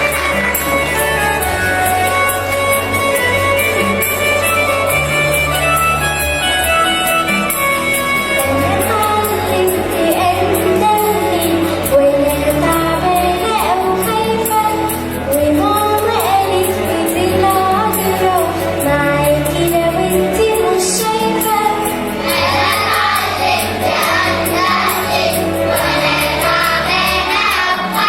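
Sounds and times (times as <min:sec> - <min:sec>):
children's choir singing a hymn: 0:00.0 - 0:02.5, 0:19.9 - 0:28.0
instrumental backing with bass: 0:00.0 - 0:28.0.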